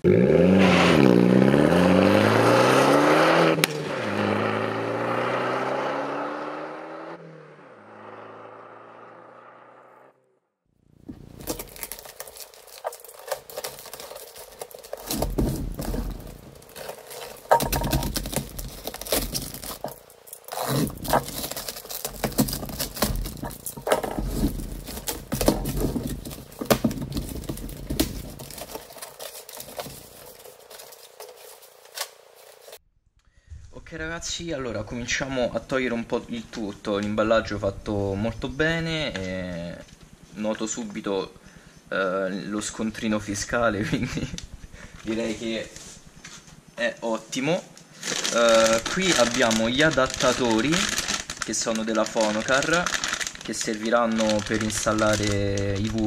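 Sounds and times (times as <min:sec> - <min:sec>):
car engine revving: 0:00.0 - 0:10.2
cardboard flaps scraping: 0:11.0 - 0:32.8, 0:48.0 - 0:56.0
packing tape pulled and cut: 0:11.0 - 0:32.8, 0:48.0 - 0:56.0
clicks and knocks: 0:11.4 - 0:31.3.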